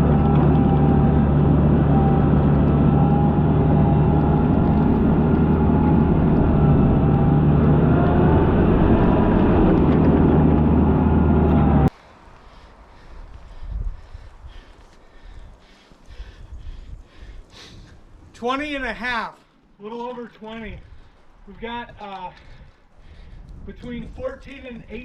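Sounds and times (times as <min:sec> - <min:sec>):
tractor diesel engine running: 0:00.0 - 0:11.9
wavering whine: 0:00.0 - 0:11.9.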